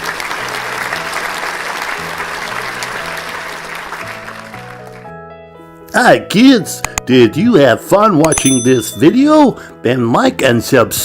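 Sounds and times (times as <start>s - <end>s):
applause: 0.0s - 5.1s
soft background music: 0.0s - 11.0s.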